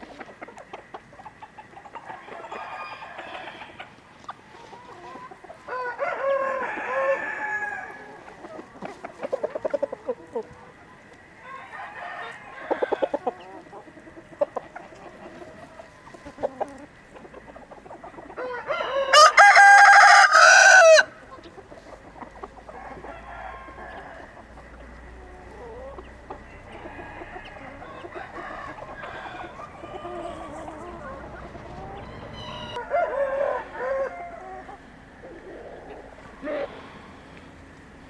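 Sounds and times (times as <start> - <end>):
hens clucking softly: 0.0 - 38.0
rooster crowing: 2.1 - 3.9, 5.6 - 8.2, 11.4 - 13.5, 18.4 - 21.2, 22.7 - 36.8.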